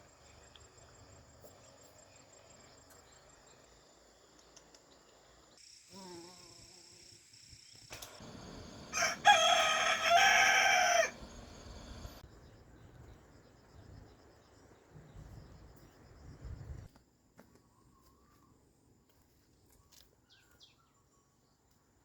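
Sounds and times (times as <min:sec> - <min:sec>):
faint high insect buzz: 0:00.0 - 0:12.2.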